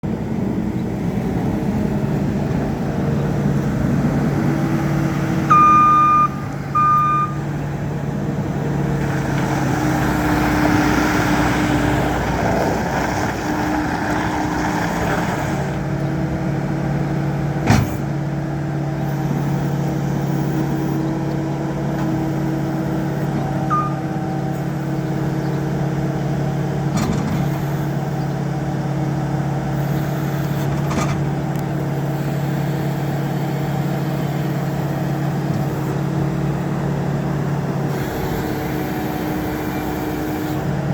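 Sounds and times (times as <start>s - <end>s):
diesel engine running: 0.0s - 40.9s
loud beeps: 5.5s - 7.5s, 23.1s - 24.2s.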